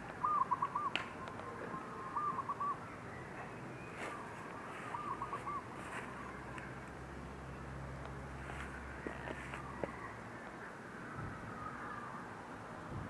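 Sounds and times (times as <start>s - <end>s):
bird calling: 0.0s - 6.8s, 8.4s - 10.2s.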